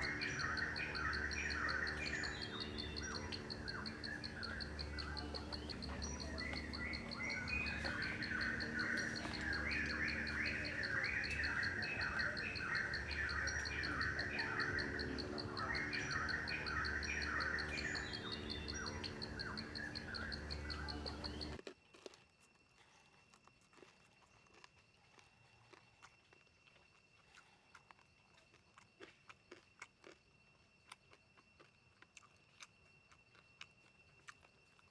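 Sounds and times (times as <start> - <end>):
birds chirping: 0.0 - 21.6
insect pulsing trill: 0.0 - 21.6.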